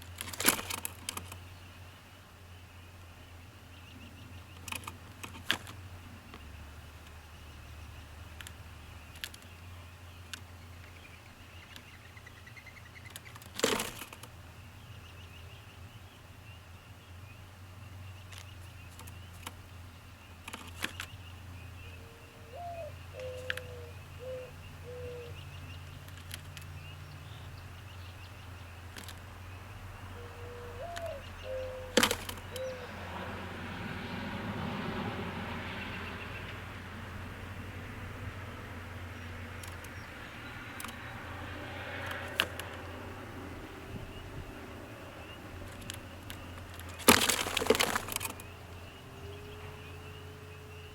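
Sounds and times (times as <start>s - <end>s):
bird cooing: 21.8s - 25.5s, 30.1s - 33.2s.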